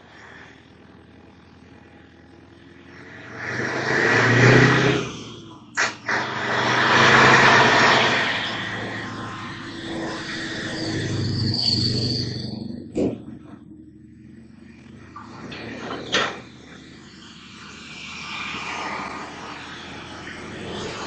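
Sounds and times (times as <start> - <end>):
road vehicles passing by: 0.0 - 21.0
sharp click: 5.7 - 6.2.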